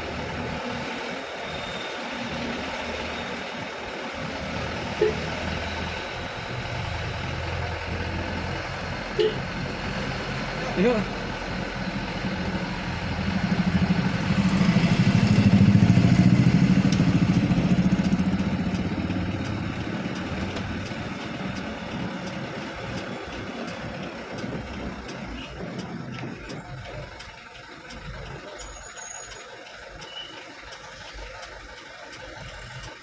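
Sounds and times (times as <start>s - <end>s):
vehicle engine passing by: 4.2s - 25.9s
faint regular ticking: 10.8s - 33.0s.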